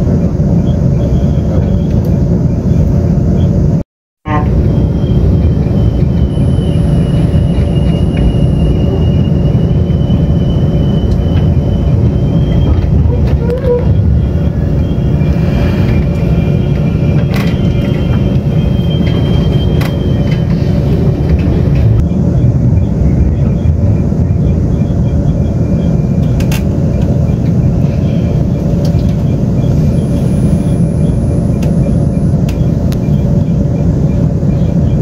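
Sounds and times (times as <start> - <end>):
train wheels rumbling on track: 0.0 - 35.0
faint high whine: 29.6 - 33.6.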